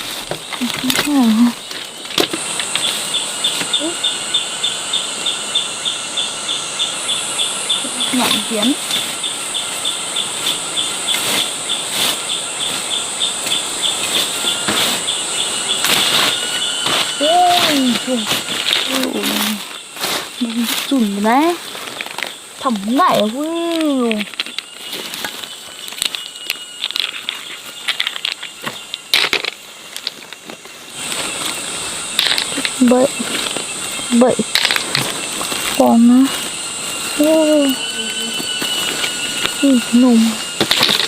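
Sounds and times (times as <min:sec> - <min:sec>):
high buzz of calling wildlife: 0:00.0 - 0:41.0
handling clicks and rustling: 0:15.8 - 0:31.6, 0:32.2 - 0:35.9, 0:40.6 - 0:41.0.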